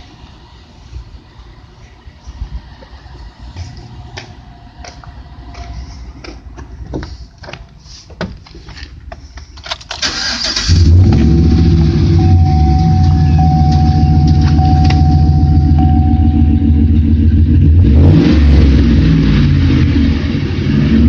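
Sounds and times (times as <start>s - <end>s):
truck engine idling loudly: 11.5s - 17.9s.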